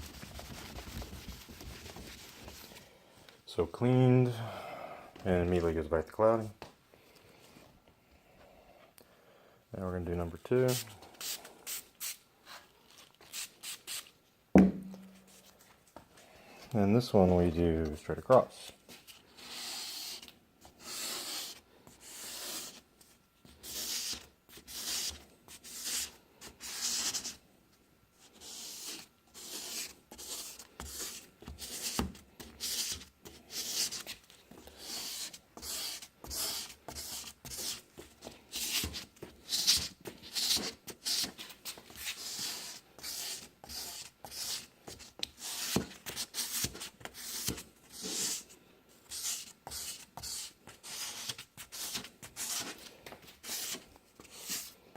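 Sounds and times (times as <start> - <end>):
abrasive pad rubbing plastic: 0.0 - 2.8.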